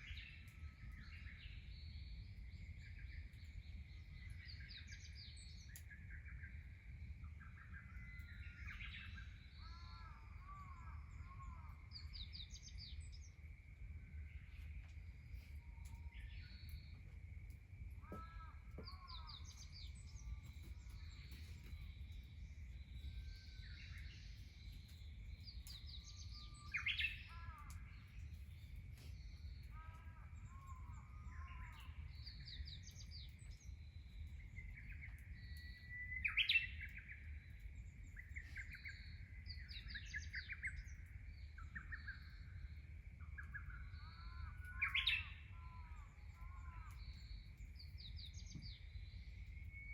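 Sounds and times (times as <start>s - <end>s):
wild birds calling and singing: 0.0s - 49.9s.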